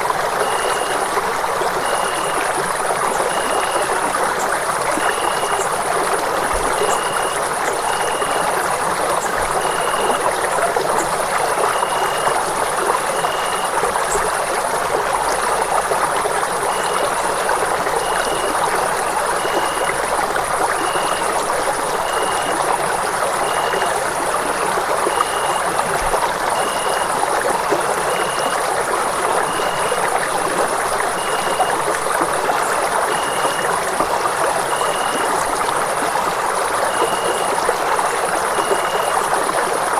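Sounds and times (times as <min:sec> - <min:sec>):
running water: 0:00.0 - 0:39.9
faint high chirp: 0:00.4 - 0:01.0, 0:06.7 - 0:08.5.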